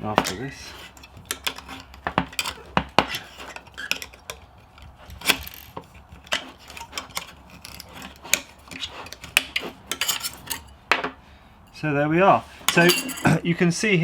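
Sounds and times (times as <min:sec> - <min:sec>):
metallic clicks of hard disk parts: 0:00.1 - 0:10.7.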